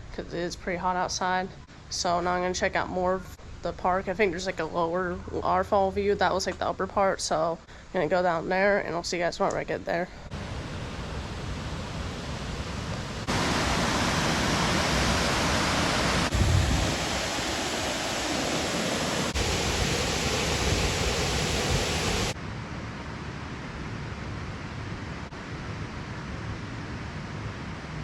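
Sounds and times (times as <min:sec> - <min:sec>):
waterfall rushing: 0:10.3 - 0:22.4.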